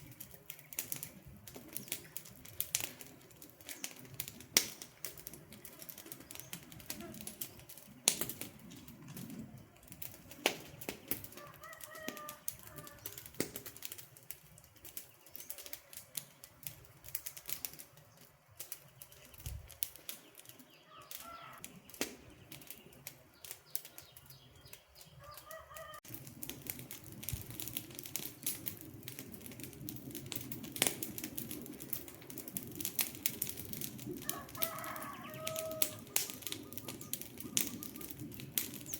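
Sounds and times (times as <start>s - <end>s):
campfire crackling and popping: 0.0s - 38.9s
bird call: 20.8s - 21.6s.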